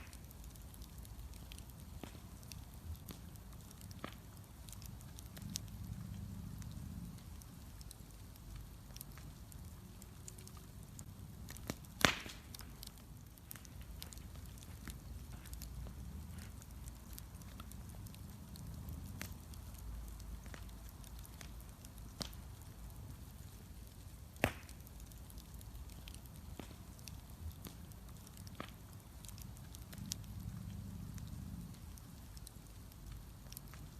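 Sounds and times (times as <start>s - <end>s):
bonfire crackling: 0.0s - 33.9s
low fire rumble: 0.0s - 33.9s
loud sharp pops: 11.6s - 12.6s, 24.4s - 24.8s.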